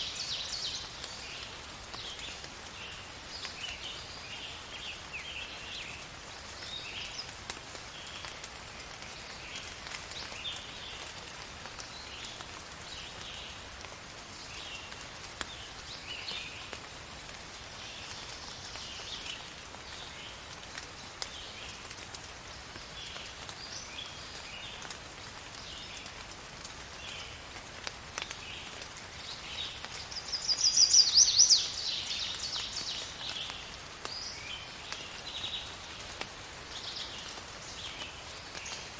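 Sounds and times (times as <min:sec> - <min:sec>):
steady rain falling: 0:00.0 - 0:38.9
birds chirping: 0:29.2 - 0:35.8.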